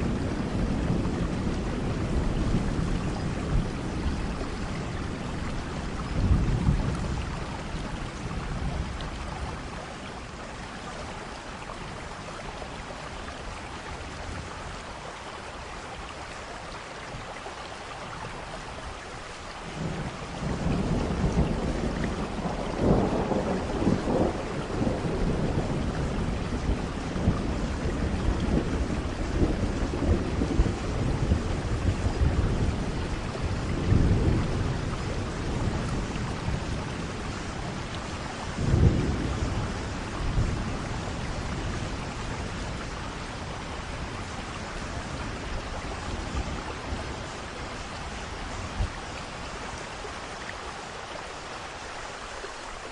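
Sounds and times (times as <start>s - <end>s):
rolling thunder: 0.0s - 9.8s, 19.8s - 49.8s
steady rain: 0.0s - 52.9s.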